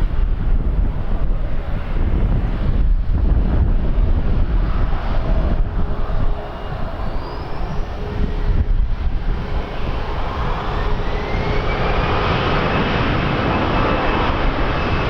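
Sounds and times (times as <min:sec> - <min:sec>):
airliner engines: 0:00.0 - 0:15.0
wind rumble on microphone: 0:00.0 - 0:15.0
thin rising whines: 0:04.6 - 0:15.0.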